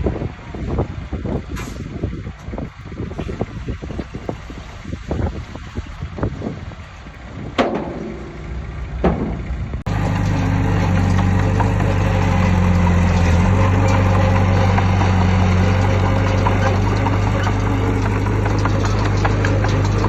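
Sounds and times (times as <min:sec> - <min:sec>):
wind on microphone: 0:00.0 - 0:07.7
diesel engine droning: 0:00.0 - 0:20.0.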